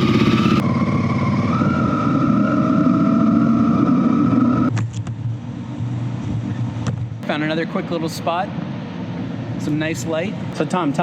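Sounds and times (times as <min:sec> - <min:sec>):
motorcycle engine running: 0:00.0 - 0:07.2
thin whine: 0:00.0 - 0:07.3.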